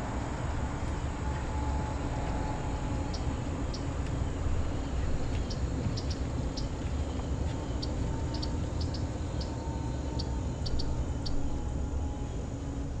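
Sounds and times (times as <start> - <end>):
steady low rumble: 0.0 - 13.0
small bird chirping: 3.0 - 11.7.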